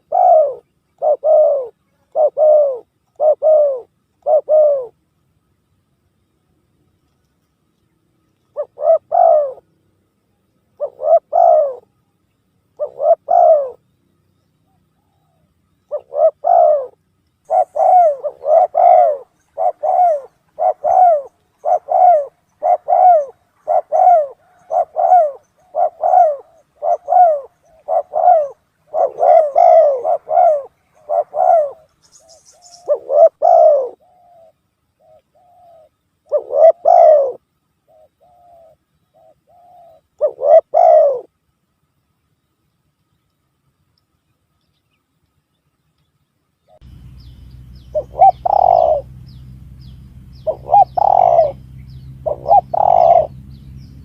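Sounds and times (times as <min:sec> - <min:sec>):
dove cooing: 0:00.0 - 0:05.0, 0:08.5 - 0:09.7, 0:10.8 - 0:12.0, 0:12.8 - 0:13.8, 0:14.7 - 0:41.3, 0:46.7 - 0:54.0.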